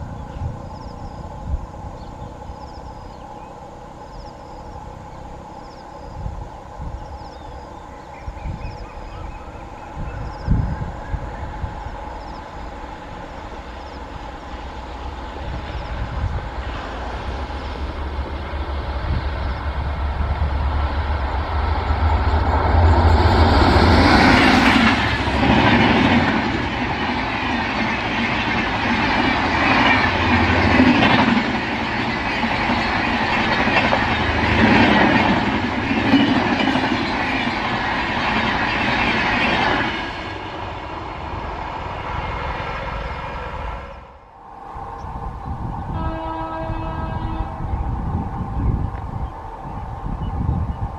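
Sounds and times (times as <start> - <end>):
passenger train passing: 0.0 - 50.9
wheels clattering on rails: 21.6 - 40.4.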